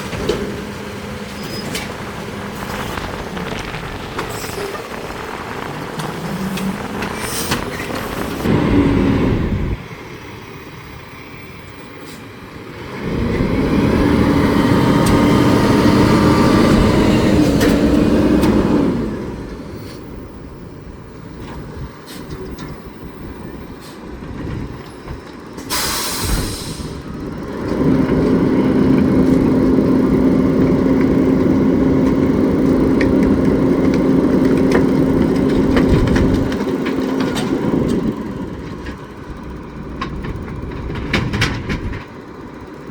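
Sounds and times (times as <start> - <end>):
garbage truck engine droning: 0.0 - 42.9
air hiss: 25.7 - 27.0.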